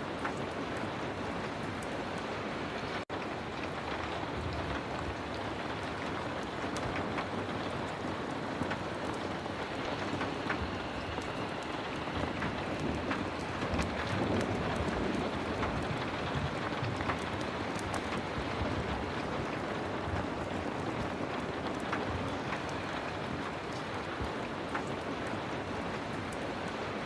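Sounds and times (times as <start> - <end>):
heavy rain: 0.0 - 27.0.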